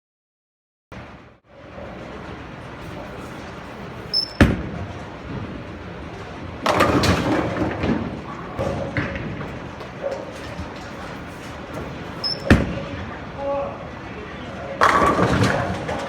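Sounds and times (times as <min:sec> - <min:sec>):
bowling pins clattering: 0:01.6 - 0:16.0
bowling ball thudding on lane: 0:02.8 - 0:13.3, 0:14.8 - 0:16.0.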